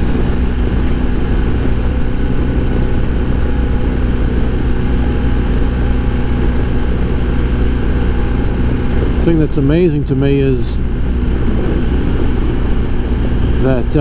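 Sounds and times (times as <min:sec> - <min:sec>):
motorcycle engine running: 0:00.0 - 0:14.0
wind noise in helmet: 0:10.8 - 0:13.6.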